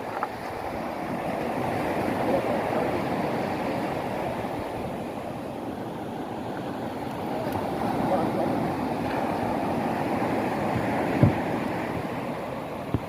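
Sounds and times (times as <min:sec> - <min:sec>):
ocean surf: 0:00.0 - 0:13.0
wind: 0:00.0 - 0:13.0.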